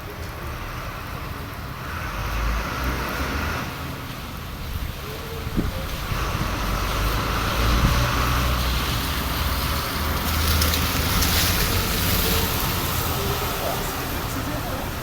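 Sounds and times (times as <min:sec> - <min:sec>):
traffic rumble and hiss: 0:00.0 - 0:15.0.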